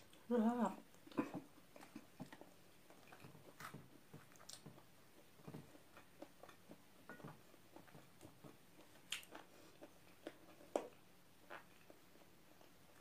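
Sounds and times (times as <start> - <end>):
person chewing: 1.1 - 4.8, 7.7 - 13.0.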